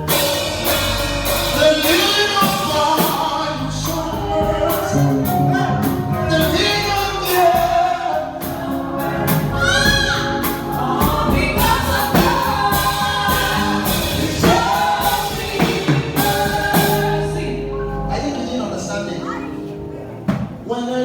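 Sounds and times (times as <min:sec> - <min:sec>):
backing band with drums: 0:00.0 - 0:17.3
choir singing gospel: 0:00.0 - 0:21.0.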